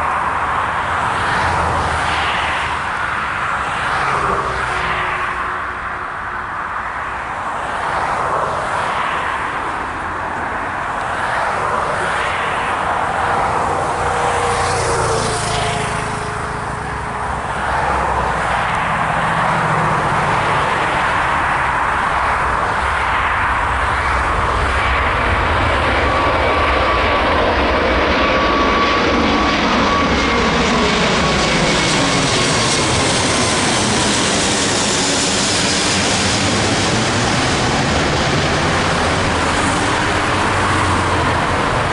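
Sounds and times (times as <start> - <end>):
jet engines roaring: 0.0 - 41.9.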